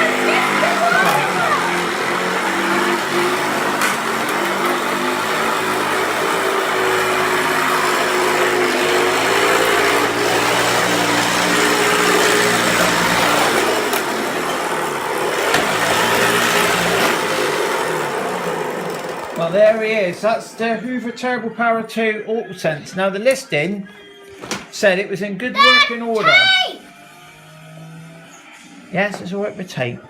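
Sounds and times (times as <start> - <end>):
vacuum cleaner running: 0.0 - 20.9, 25.6 - 29.5.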